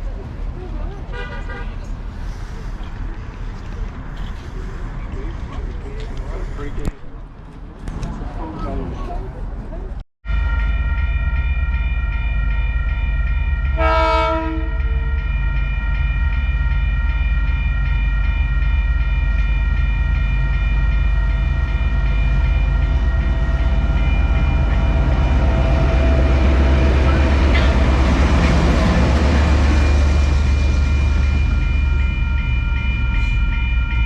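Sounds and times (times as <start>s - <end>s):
locomotive rumbling: 0.0s - 34.0s
train horn toot: 13.8s - 14.9s.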